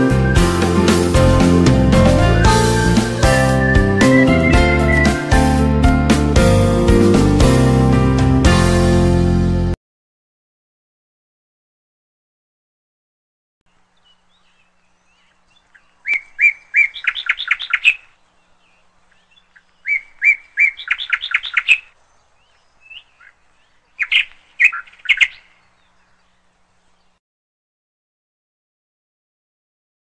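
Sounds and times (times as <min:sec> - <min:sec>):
songbird singing: 0:00.0 - 0:05.9, 0:13.7 - 0:27.2.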